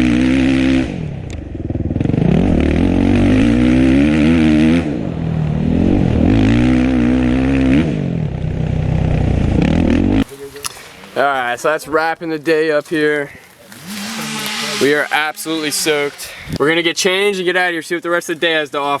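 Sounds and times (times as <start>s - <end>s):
dirt bike engine revving: 0.0s - 10.3s, 13.7s - 16.6s.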